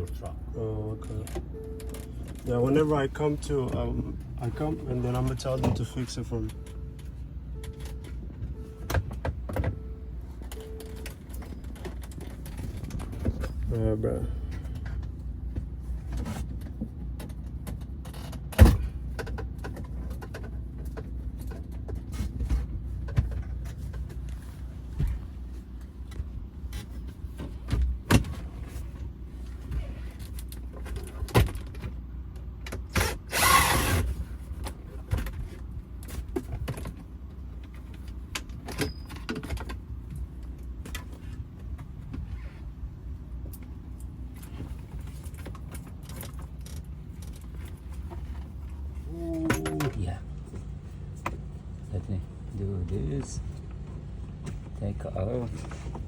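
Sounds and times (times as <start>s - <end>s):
clicks and knocks in cab: 14.5s - 25.3s.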